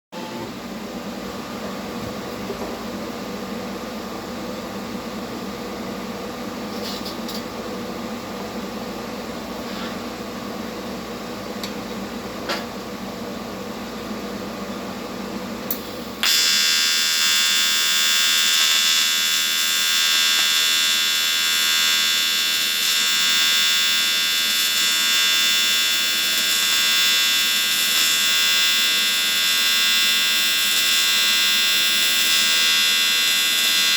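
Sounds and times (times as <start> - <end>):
welder humming with fan: 0.2 - 33.9
welding arc buzzing: 15.7 - 33.9.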